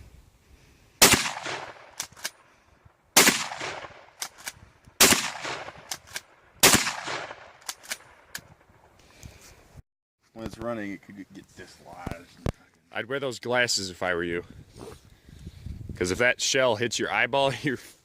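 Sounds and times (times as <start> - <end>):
shotgun shots: 1.0 - 2.4, 3.2 - 8.2
sharp clicks: 1.5 - 2.4, 3.6 - 6.3, 7.6 - 8.5.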